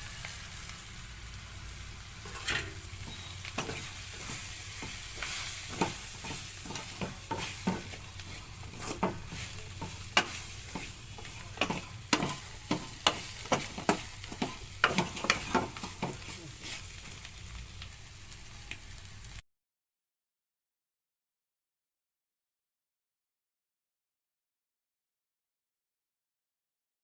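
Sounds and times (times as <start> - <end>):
vegetables sizzling in a pan: 0.0 - 19.4
spatula scraping a pan: 2.0 - 17.4.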